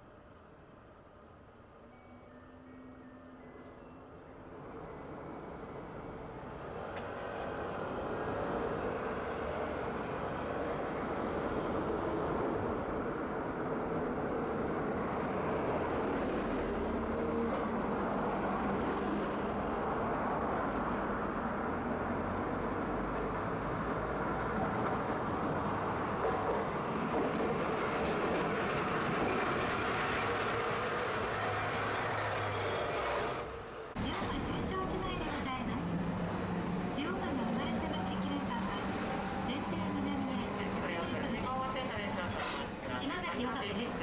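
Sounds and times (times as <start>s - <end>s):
streetcar wheels rumbling on rail: 4.5s - 44.0s.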